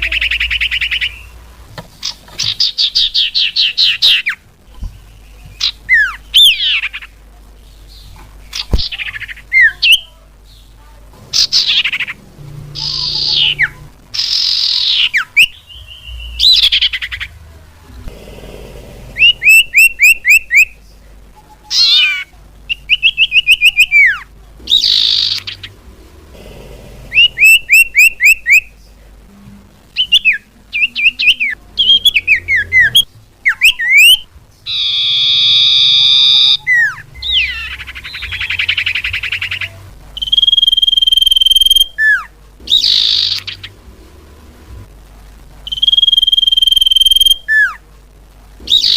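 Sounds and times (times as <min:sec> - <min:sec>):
bird trill: 0:11.3 - 0:17.4, 0:19.2 - 0:20.8, 0:21.7 - 0:25.8, 0:27.2 - 0:28.7, 0:30.0 - 0:43.8, 0:45.7 - 0:47.8, 0:48.7 - 0:48.9
harsh buzzy bird call: 0:11.3 - 0:17.4, 0:19.0 - 0:20.8, 0:21.7 - 0:28.8, 0:29.9 - 0:43.8, 0:48.6 - 0:48.9
bird whistling calls: 0:30.0 - 0:43.7, 0:45.7 - 0:47.8, 0:48.7 - 0:48.9.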